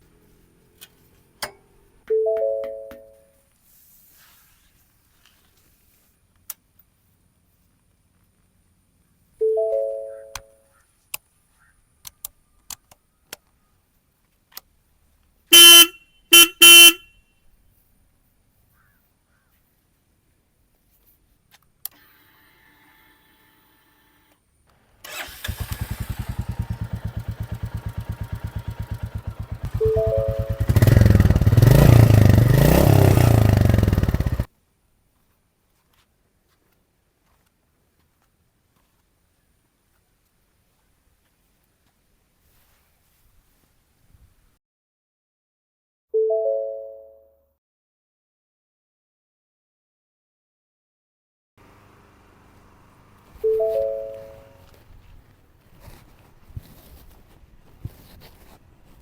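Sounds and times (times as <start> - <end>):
motorcycle horn honking: 15.5 - 17.1, 25.1 - 34.5.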